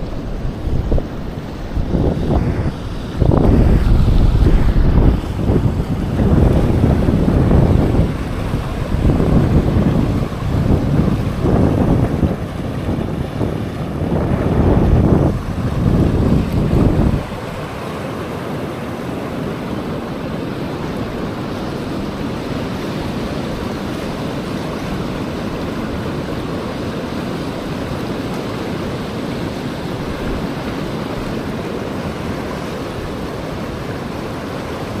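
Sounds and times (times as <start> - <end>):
low buffeting rumble: 0.0 - 17.4
steady rushing noise: 0.0 - 35.0.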